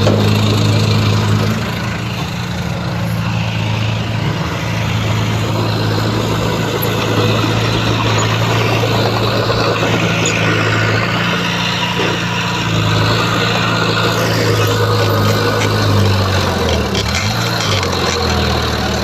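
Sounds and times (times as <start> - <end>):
heavy diesel engine running: 0.0 - 19.0
mechanical noise: 3.0 - 18.3.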